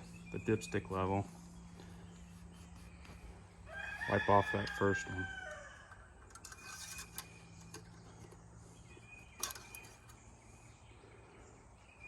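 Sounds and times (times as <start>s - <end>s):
steady low hum: 0.0s - 3.8s
birds chirping: 0.0s - 12.0s.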